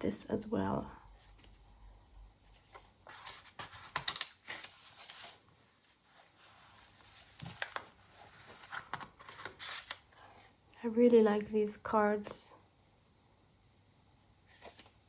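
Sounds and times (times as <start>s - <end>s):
paper pages rustling: 2.5s - 10.1s, 14.5s - 15.0s.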